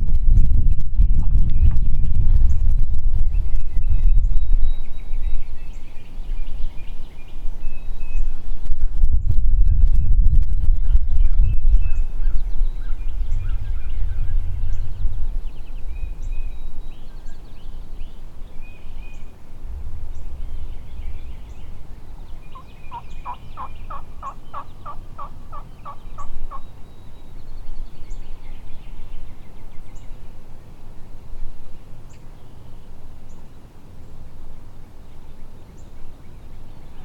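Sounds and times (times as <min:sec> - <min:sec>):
low rumble: 0:00.0 - 0:17.9, 0:19.2 - 0:24.8
small songbirds chirping: 0:01.2 - 0:37.0
turkey yelping: 0:22.5 - 0:26.6.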